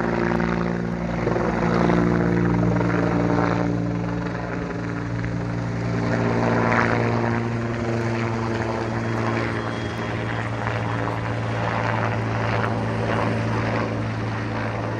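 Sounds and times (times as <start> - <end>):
helicopter rotor drone: 0.0 - 14.9.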